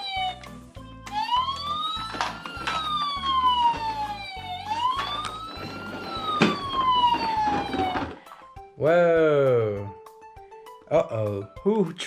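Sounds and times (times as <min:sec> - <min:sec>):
electronic toy siren wailing: 0:00.0 - 0:00.5, 0:01.1 - 0:08.2.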